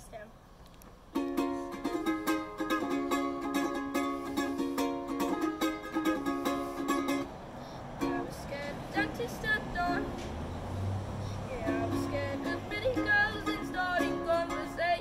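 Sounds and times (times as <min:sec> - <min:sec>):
ukulele strumming chords: 0:01.1 - 0:07.3, 0:08.0 - 0:10.2, 0:11.6 - 0:15.0.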